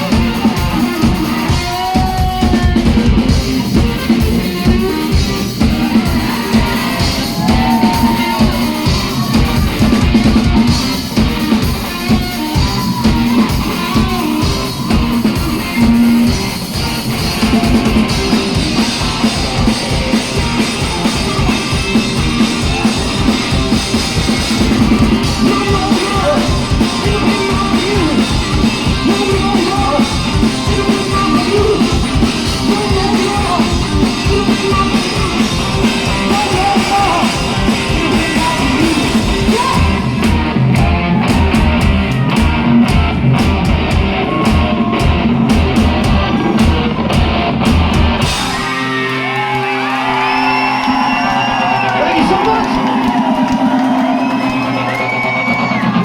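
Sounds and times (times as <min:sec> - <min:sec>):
heavy low beat: 0:00.0 - 0:48.7
drum kit: 0:00.0 - 0:56.0
electric guitar: 0:00.0 - 0:56.0
person singing: 0:04.2 - 0:10.9, 0:24.8 - 0:43.0.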